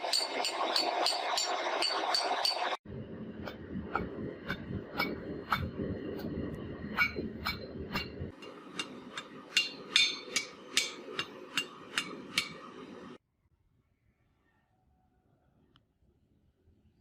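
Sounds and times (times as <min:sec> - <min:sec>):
hammer striking metal: 0:00.0 - 0:02.8, 0:07.0 - 0:13.2
low rumble: 0:02.8 - 0:09.8.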